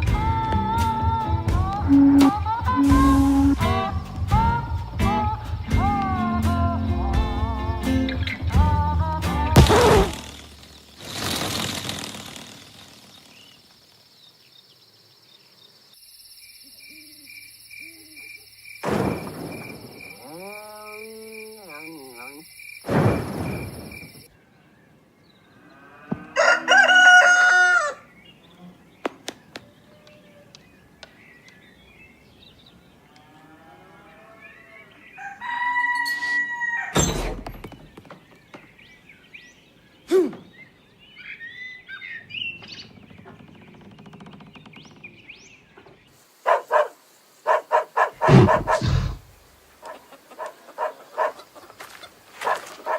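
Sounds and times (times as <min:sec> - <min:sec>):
high steady tone: 0:01.9 - 0:03.6
cartoon swooshes: 0:09.6 - 0:10.4
rooster crowing: 0:25.9 - 0:28.1, 0:35.1 - 0:37.0.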